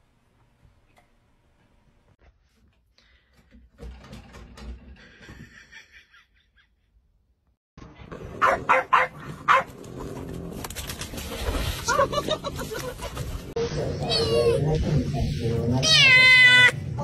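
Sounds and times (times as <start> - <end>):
dog barking: 8.4 - 9.7.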